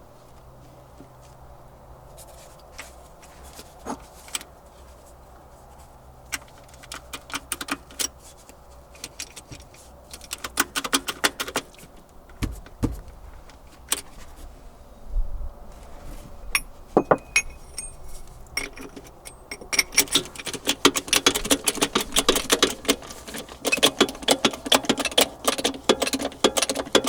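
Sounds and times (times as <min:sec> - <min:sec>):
dull thumps: 0:12.3 - 0:13.3, 0:16.6 - 0:18.0
metal tools clinking: 0:16.5 - 0:27.0.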